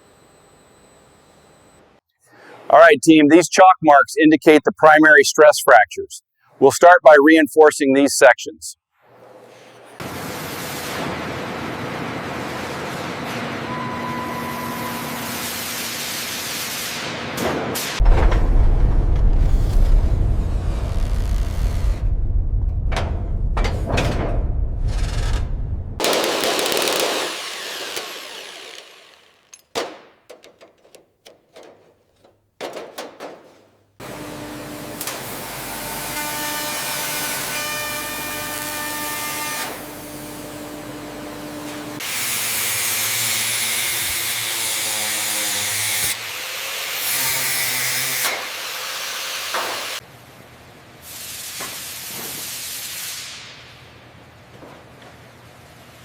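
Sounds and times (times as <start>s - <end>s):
power tool running: 26.0s - 31.5s
sharp clicks and knocks: 26.0s - 33.9s
hiss: 51.0s - 53.7s.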